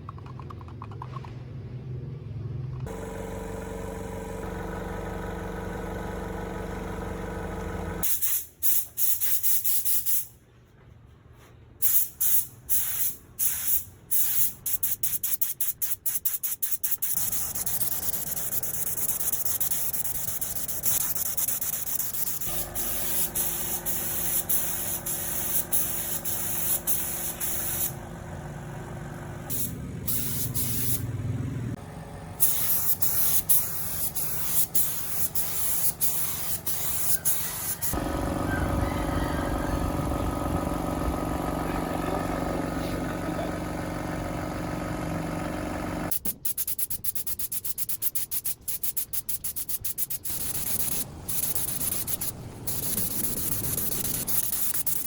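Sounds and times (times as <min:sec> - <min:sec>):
compressed air hissing: 0:08.0 - 0:10.3, 0:11.8 - 0:28.0, 0:29.5 - 0:31.0, 0:32.4 - 0:38.0, 0:46.2 - 0:55.0
motor humming: 0:38.0 - 0:46.1.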